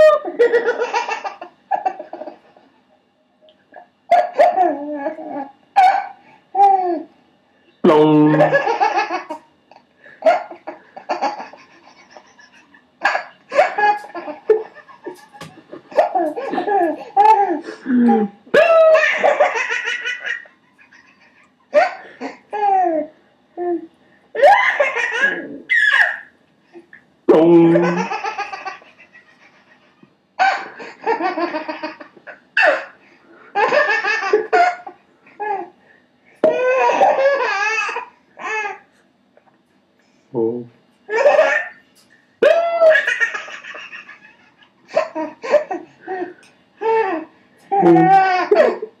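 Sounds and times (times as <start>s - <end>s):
baby laughing: 4.1s - 7.1s, 8.4s - 23.8s, 24.4s - 26.3s, 27.7s - 33.0s, 33.6s - 35.7s, 36.4s - 38.8s, 41.1s - 41.8s, 42.4s - 48.9s.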